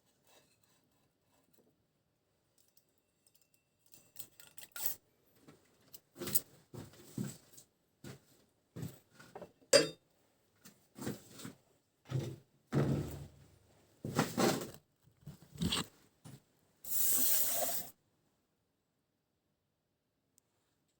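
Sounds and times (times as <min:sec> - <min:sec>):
short hiss: 0:16.9 - 0:17.9.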